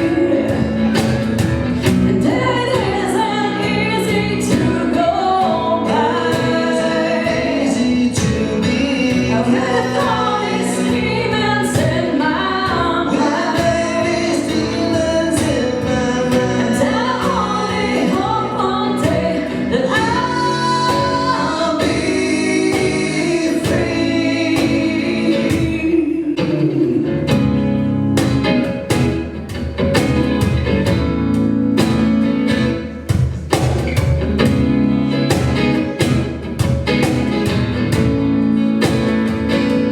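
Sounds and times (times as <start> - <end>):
person singing: 0.0 - 27.5
live band playing: 0.0 - 39.9.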